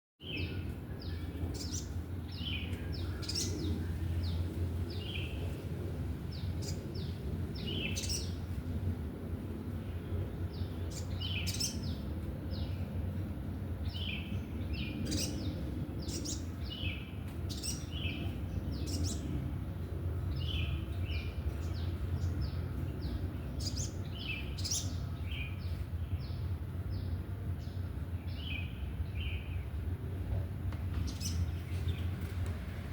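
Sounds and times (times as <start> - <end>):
bird singing: 0.2 - 5.4, 10.5 - 12.8, 13.8 - 19.4, 20.3 - 29.7
steady low hum: 0.3 - 32.9.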